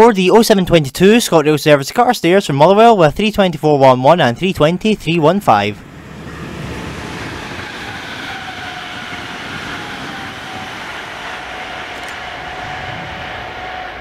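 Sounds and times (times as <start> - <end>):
faint high whine: 5.5 - 14.0
wheels rumbling on rail: 5.5 - 14.0.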